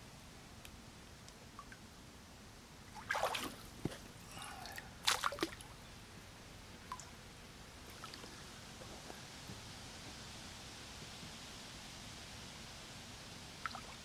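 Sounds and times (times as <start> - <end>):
water splashing: 2.9 - 5.7
faint water drips: 2.9 - 5.9, 6.8 - 7.2, 13.6 - 14.0.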